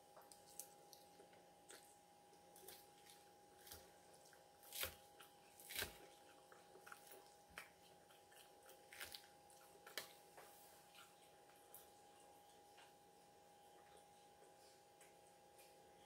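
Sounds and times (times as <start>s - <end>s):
person chewing salad: 0.1s - 12.9s.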